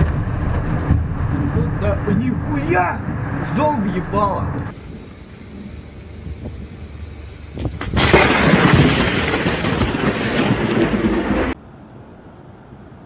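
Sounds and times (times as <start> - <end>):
thunder crack: 0.0 - 4.7, 7.5 - 11.6
thunder rumble: 0.0 - 11.6.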